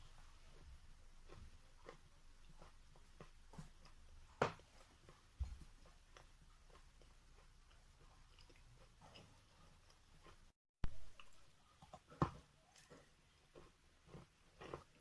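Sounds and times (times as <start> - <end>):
chalk being chewed: 0.1 - 10.5, 12.7 - 15.0.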